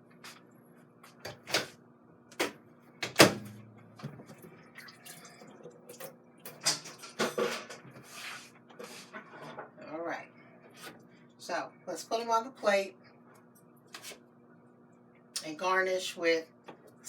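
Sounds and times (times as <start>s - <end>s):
dishes and utensils clattering: 6.6s - 7.8s.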